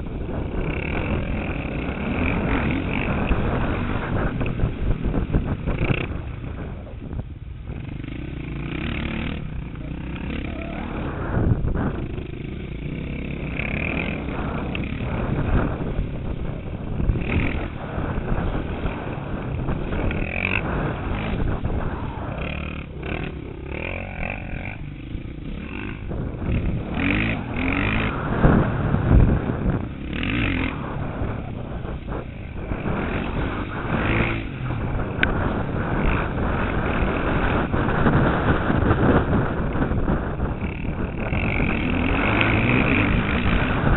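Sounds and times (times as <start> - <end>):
motocross bike engine revving: 0.0 - 43.9
wind rush: 0.0 - 43.9.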